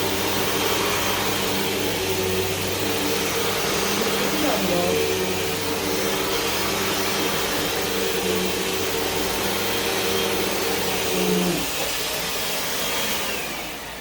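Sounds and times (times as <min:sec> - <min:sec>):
vacuum cleaner airflow hiss: 0:00.0 - 0:14.0
vacuum motor hum: 0:00.0 - 0:14.0.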